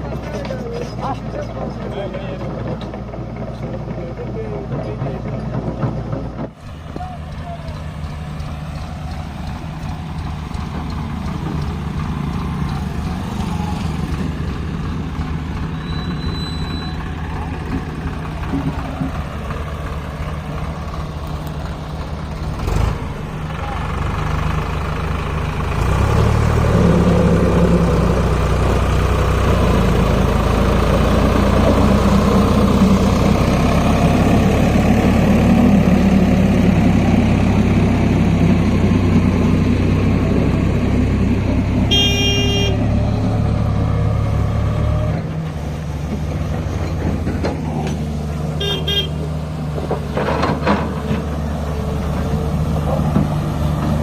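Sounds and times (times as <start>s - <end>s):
tractor diesel engine running: 0.0s - 54.0s
vehicle horn: 41.9s - 42.9s, 48.6s - 49.2s.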